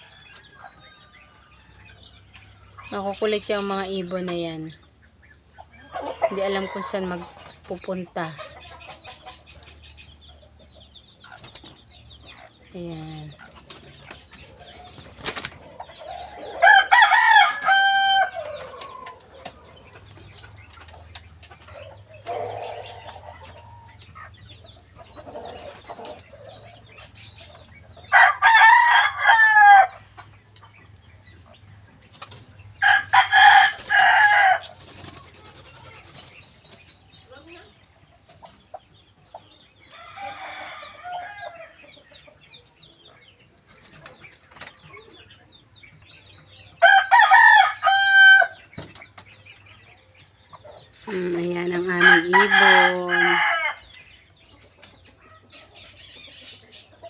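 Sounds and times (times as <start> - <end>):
rooster crowing: 16.2 - 19.2, 28.1 - 30.0, 32.8 - 34.7, 40.0 - 41.8, 46.8 - 48.6, 51.9 - 53.8.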